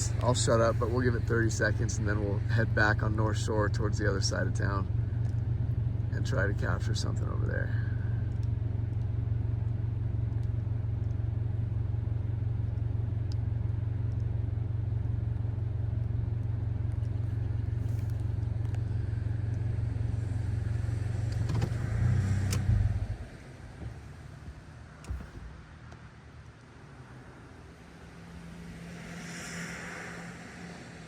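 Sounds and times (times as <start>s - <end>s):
car engine idling: 0.0s - 30.0s
click: 8.3s - 11.2s, 14.1s - 14.3s.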